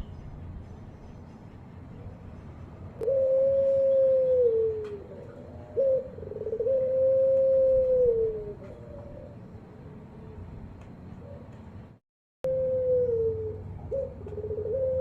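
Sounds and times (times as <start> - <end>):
dove cooing: 3.0 - 9.7, 11.1 - 11.6, 12.4 - 15.0.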